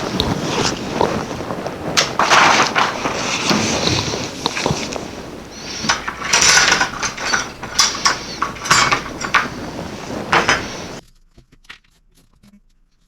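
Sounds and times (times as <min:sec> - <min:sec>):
clicks and clatters on workbench: 0:00.0 - 0:11.0
steady hiss: 0:00.0 - 0:11.0.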